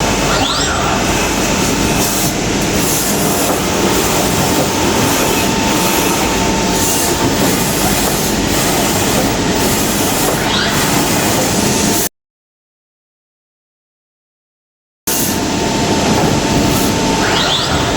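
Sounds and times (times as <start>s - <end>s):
spindle rising whine: 0.0s - 12.0s
machine whine: 0.0s - 12.1s, 15.1s - 17.9s
machining clatter: 0.0s - 12.1s.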